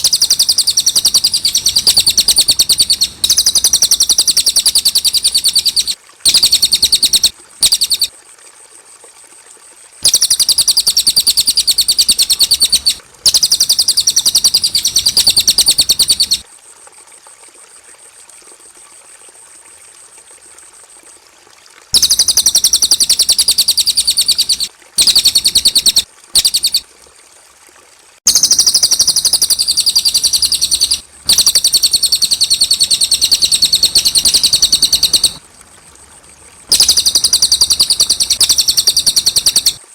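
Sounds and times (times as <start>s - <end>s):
bird trilling song: 0.0s - 8.1s, 10.0s - 16.4s, 22.0s - 26.8s, 28.3s - 35.4s, 36.7s - 39.8s.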